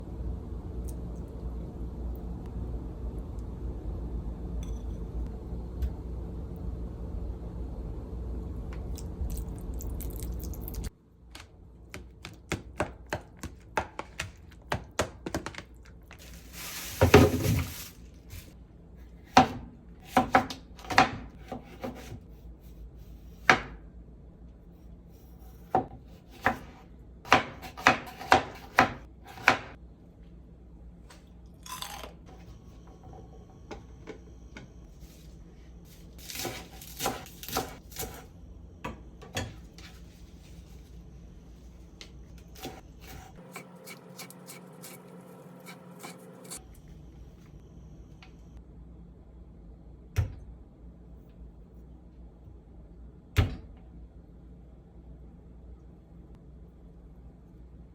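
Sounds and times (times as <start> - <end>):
knife chopping vegetables on board: 11.9 - 15.6, 19.2 - 22.2, 25.7 - 29.8.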